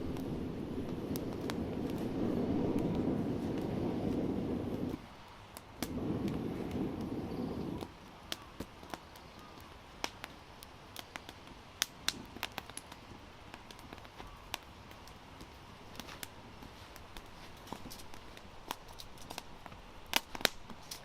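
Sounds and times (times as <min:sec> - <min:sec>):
wood fire crackling and popping: 0:00.0 - 0:21.0
low rushing noise: 0:05.8 - 0:07.9.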